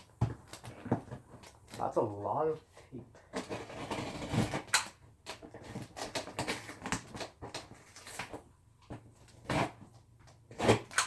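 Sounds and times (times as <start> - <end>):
packing tape tearing: 3.3 - 8.4, 9.2 - 11.0.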